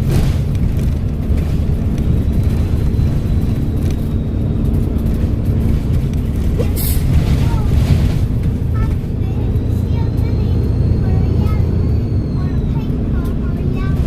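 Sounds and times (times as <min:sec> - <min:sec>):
bus diesel engine rumbling: 0:00.0 - 0:14.0
faint high turbo whistle: 0:09.2 - 0:13.6.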